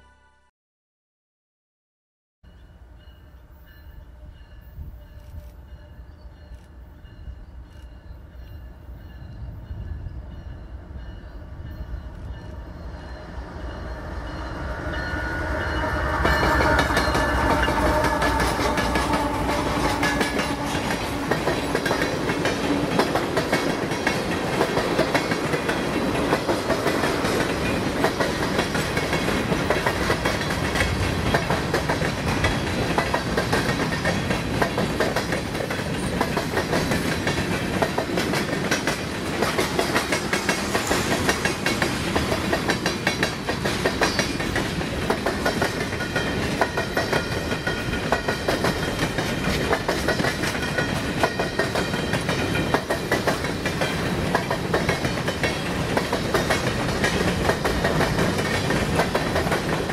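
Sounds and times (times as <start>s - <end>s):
diesel locomotive engines: 2.5s - 59.9s.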